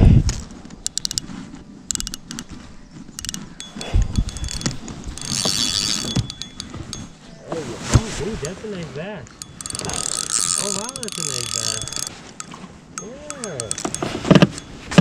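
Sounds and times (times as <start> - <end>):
fishing reel clicking: 0.8 - 1.3, 1.9 - 2.5, 3.2 - 7.1, 9.3 - 15.0.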